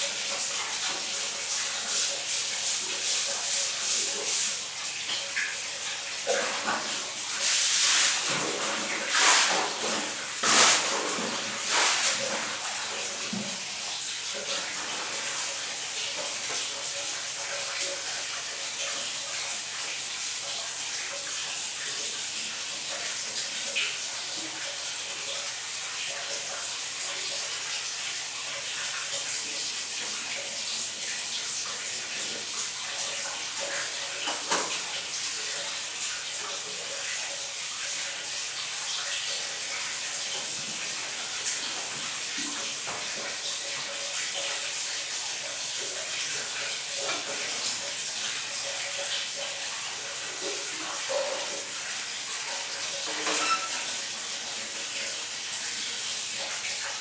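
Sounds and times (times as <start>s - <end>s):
water running from tap: 0.0s - 57.0s.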